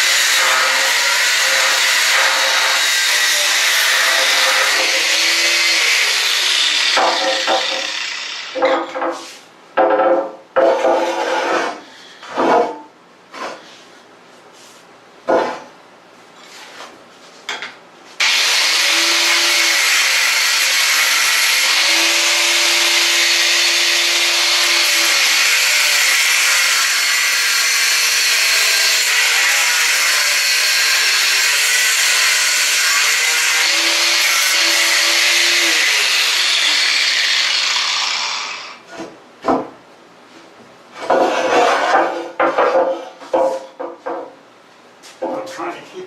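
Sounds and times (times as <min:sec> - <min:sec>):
cutoff wheel grinding steel: 0:00.0 - 0:08.6, 0:18.2 - 0:38.8.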